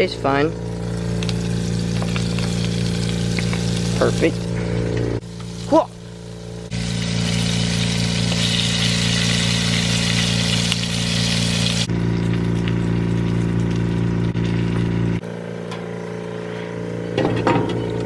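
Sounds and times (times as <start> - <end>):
steady low hum: 0.0 - 18.0
food sizzling in hot oil: 0.6 - 4.5, 5.2 - 14.0.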